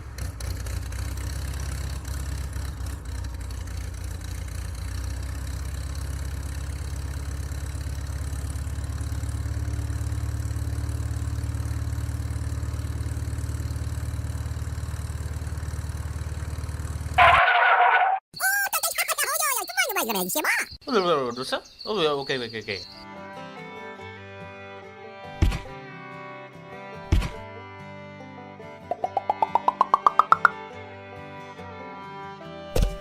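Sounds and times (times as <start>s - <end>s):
small engine idling: 0.0s - 17.4s.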